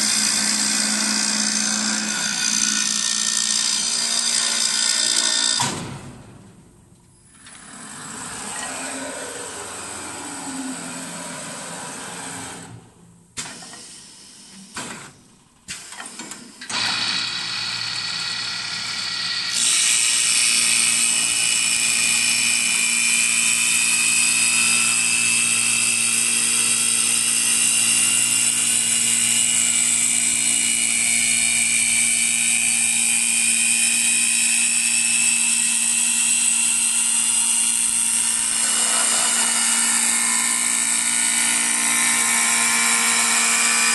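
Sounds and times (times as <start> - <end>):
wood lathe whining: 0.0 - 5.6, 16.7 - 43.9.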